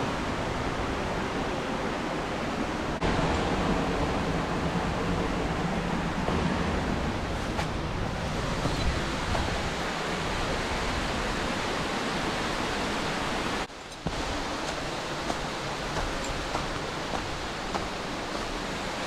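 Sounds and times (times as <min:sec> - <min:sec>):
waterfall rushing: 0:05.8 - 0:19.0.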